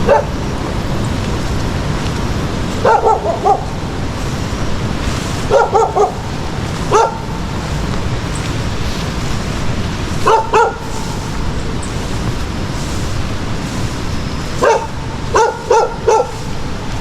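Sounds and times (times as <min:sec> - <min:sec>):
dog barking: 0:00.0 - 0:00.5, 0:02.7 - 0:08.5, 0:10.1 - 0:11.4, 0:14.4 - 0:17.0
low background rumble: 0:00.0 - 0:17.0.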